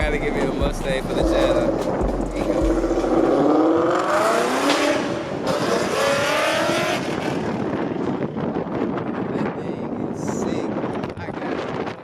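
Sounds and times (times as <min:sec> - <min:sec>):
car engine accelerating: 0:00.0 - 0:07.9.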